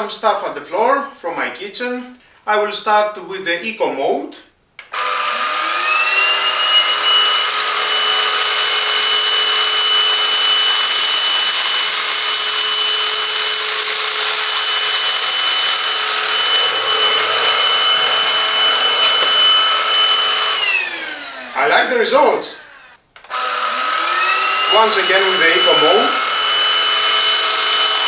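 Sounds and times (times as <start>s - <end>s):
vacuum cleaner motor whine: 5.0s - 28.0s
debris crackling in vacuum: 7.2s - 21.1s, 24.7s - 28.0s.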